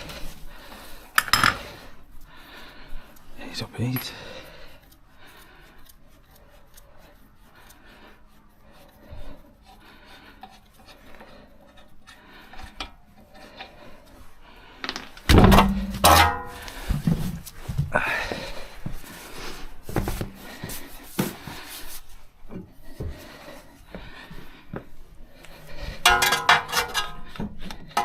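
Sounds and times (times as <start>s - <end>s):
tools rubbing and scraping: 0.0s - 2.4s, 3.0s - 17.8s, 25.6s - 28.0s.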